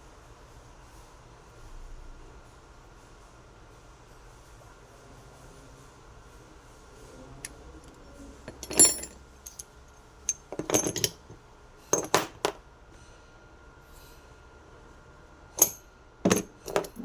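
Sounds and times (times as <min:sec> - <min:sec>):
metal tools clinking: 0:08.4 - 0:09.7, 0:10.3 - 0:11.4, 0:12.0 - 0:12.6, 0:15.6 - 0:17.0.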